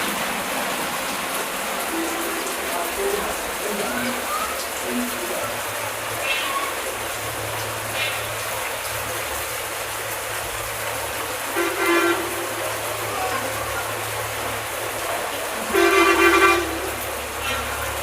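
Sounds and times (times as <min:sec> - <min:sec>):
heavy rain hiss: 0:00.0 - 0:18.0
vehicle horn honks: 0:11.5 - 0:13.5, 0:15.7 - 0:17.7.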